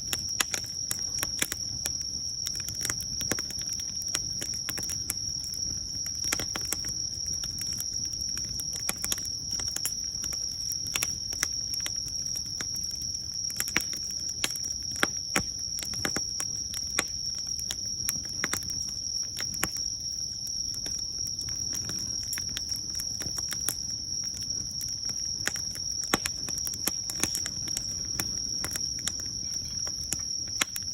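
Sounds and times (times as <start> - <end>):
insects trilling: 0.0 - 30.9
wood fire crackling: 0.0 - 30.9.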